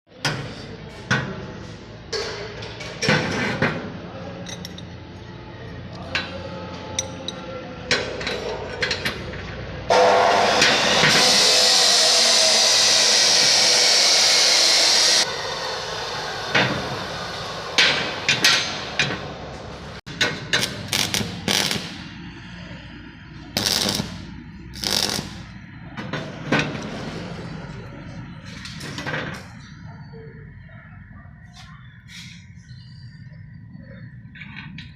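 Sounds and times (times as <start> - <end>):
metalworking tool running: 9.9 - 19.7.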